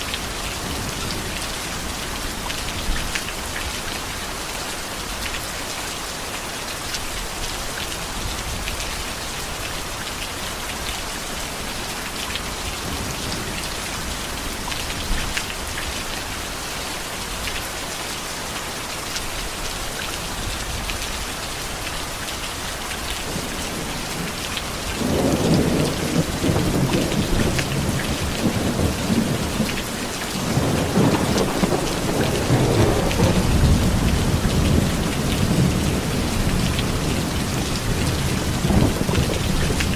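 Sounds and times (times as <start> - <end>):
heavy rain falling: 0.0 - 39.9
thunder rumbling: 23.3 - 39.9.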